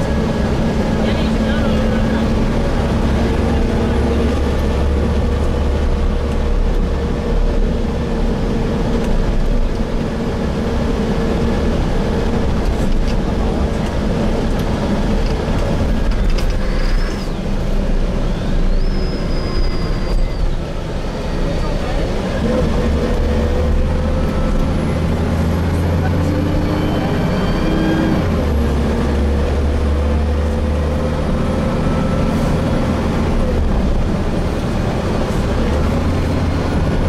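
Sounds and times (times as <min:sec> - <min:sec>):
bus engine drone: 0:00.0 - 0:37.0
low road rumble: 0:00.0 - 0:37.0
faint high whistles: 0:18.3 - 0:20.6.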